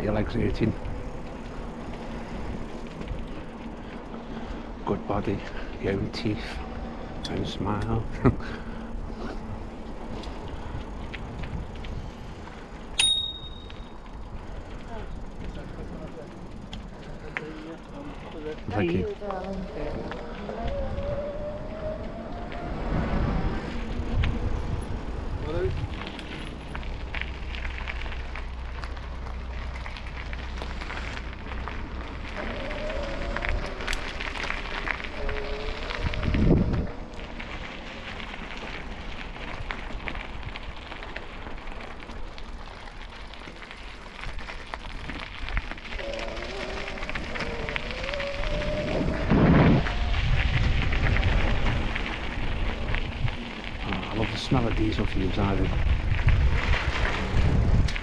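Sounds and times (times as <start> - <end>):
bicycle rolling: 0.0 - 58.0
low rumble: 0.0 - 58.0
tyres crackling on rough path: 0.0 - 58.0
wind rumbling on microphone: 0.0 - 58.0
bicycle bell ring: 13.0 - 14.0.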